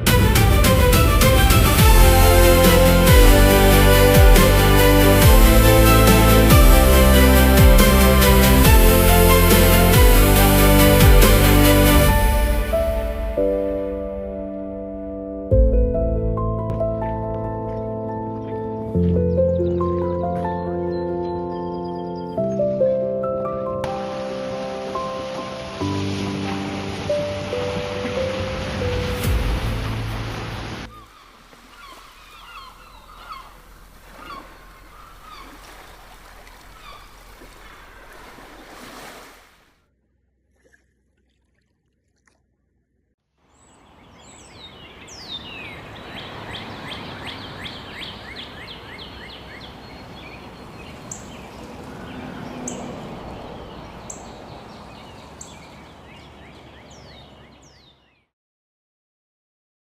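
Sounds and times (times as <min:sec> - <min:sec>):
birds chirping: 0:17.0 - 0:23.8, 0:30.8 - 0:38.9, 0:43.5 - 0:58.2
outdoor background hiss: 0:23.9 - 0:27.7.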